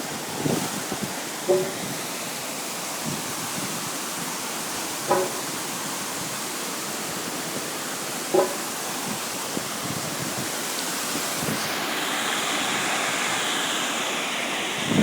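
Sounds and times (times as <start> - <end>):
wind buffeting microphone: 0.0 - 2.1, 8.3 - 11.8, 14.8 - 15.0
sea surf rushing: 0.0 - 15.0.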